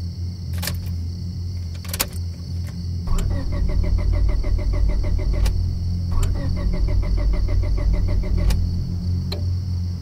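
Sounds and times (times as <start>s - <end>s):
ignition key clicking: 1.7s - 2.3s, 3.1s - 8.7s
steady low drone: 2.6s - 10.0s
starter cranking engine: 3.1s - 9.4s.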